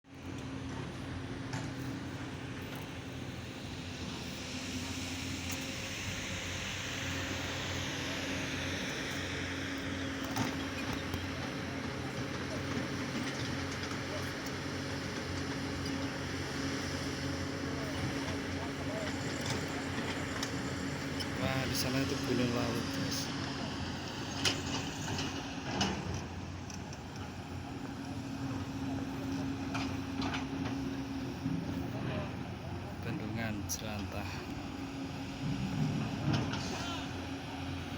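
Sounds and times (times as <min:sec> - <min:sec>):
engine running: 0:00.1 - 0:37.9.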